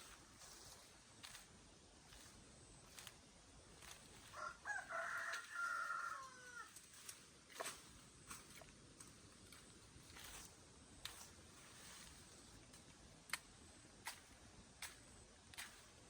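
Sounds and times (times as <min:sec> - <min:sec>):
rooster crowing: 0:04.2 - 0:06.8.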